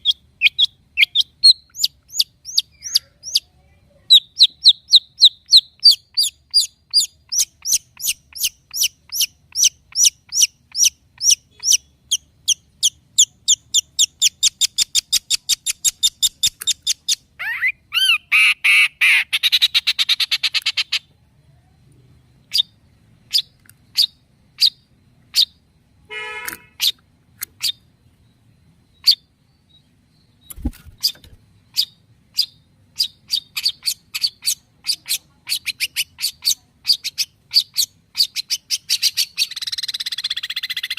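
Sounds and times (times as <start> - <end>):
bird singing high repeated notes: 0.0 - 3.4.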